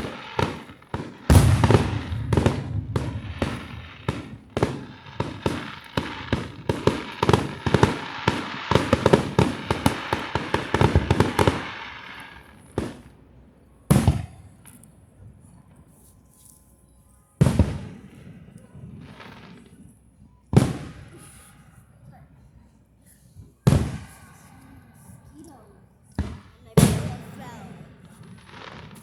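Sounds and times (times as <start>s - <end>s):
loud fireworks boom: 0.0s - 11.6s
fireworks bangs and crackling: 0.0s - 14.7s, 17.4s - 21.5s, 23.6s - 24.5s, 26.2s - 29.0s.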